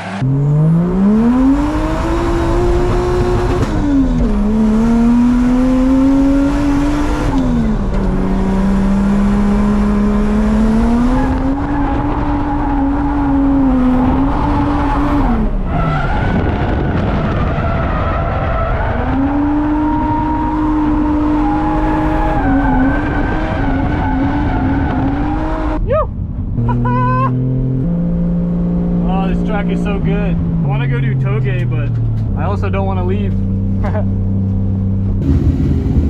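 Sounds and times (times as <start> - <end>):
tyres skidding: 0.0 - 25.9
car engine at high revs: 0.0 - 36.0.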